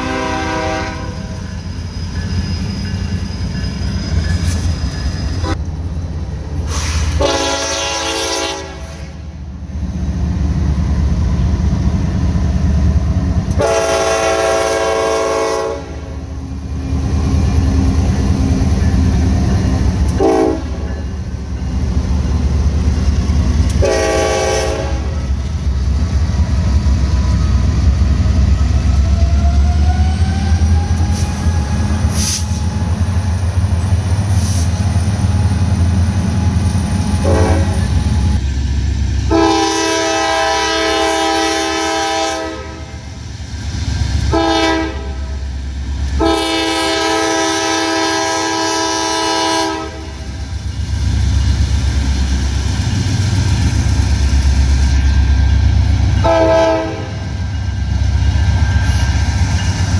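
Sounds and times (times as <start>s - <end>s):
train air horn blasts: 0.0s - 1.4s, 6.7s - 9.2s, 13.5s - 16.1s, 20.1s - 21.0s, 23.7s - 25.2s, 37.2s - 37.8s, 39.3s - 43.0s, 44.3s - 45.4s, 46.2s - 50.3s, 56.2s - 57.2s
diesel locomotive engine rumble: 0.0s - 59.9s.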